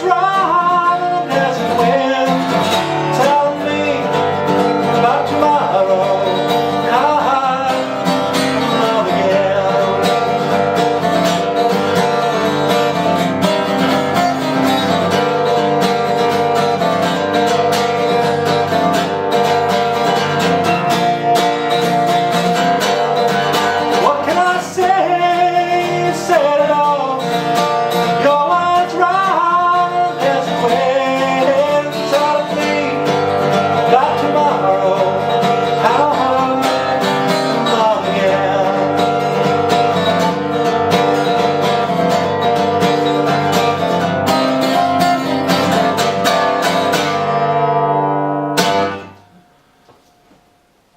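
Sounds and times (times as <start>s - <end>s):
person singing: 0.0s - 10.6s, 23.8s - 40.5s
acoustic guitar plucking: 0.0s - 50.5s.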